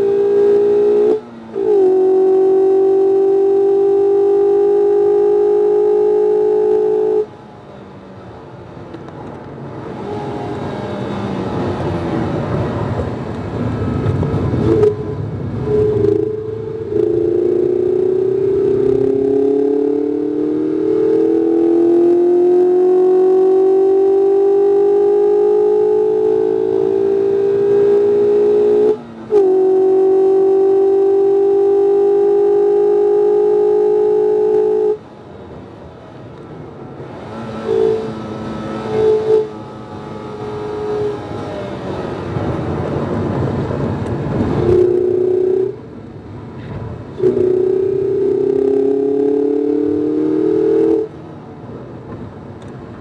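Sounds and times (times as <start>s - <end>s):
car engine at full throttle: 0.0s - 53.0s
road noise: 0.0s - 53.0s
short tones: 13.8s - 20.0s.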